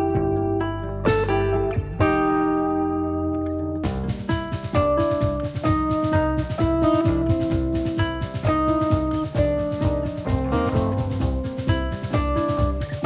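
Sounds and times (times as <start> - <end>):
upbeat instrumental music: 0.0 - 13.0.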